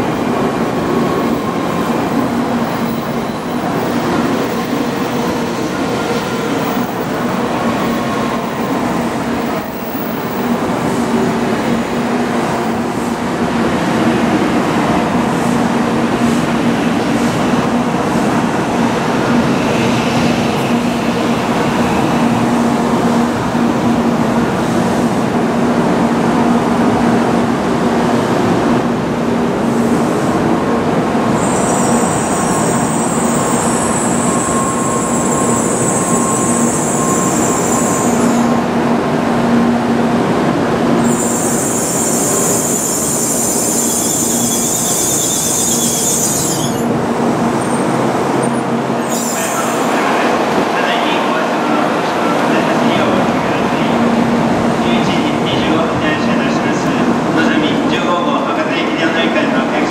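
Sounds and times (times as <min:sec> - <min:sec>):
high-pitched wheel squeal: 0:31.4 - 0:38.4, 0:41.0 - 0:46.9, 0:49.0 - 0:49.8.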